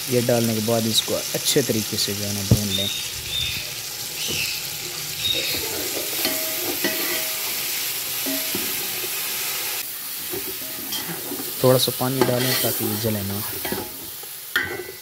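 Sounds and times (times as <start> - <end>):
food sizzling in oil: 0.0 - 15.0
metal ladle scraping a pot: 5.4 - 7.5, 10.3 - 11.6, 12.2 - 12.9.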